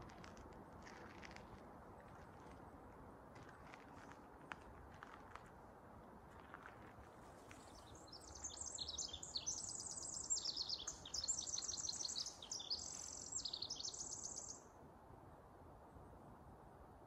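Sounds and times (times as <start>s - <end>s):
songbird singing rapid trills: 7.5s - 14.7s.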